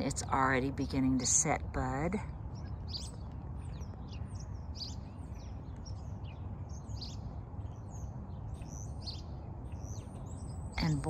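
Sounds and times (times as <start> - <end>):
low background rumble: 0.0 - 11.0
songbirds chirping: 0.0 - 11.0.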